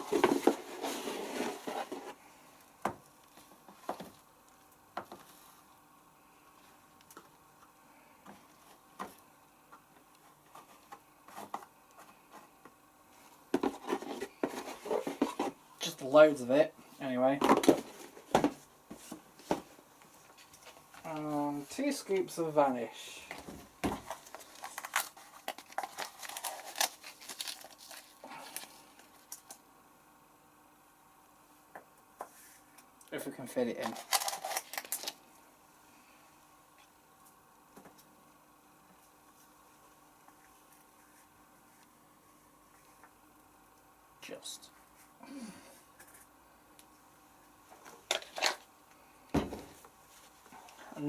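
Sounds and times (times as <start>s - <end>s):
powder rustling: 0.0s - 2.4s, 23.9s - 29.6s.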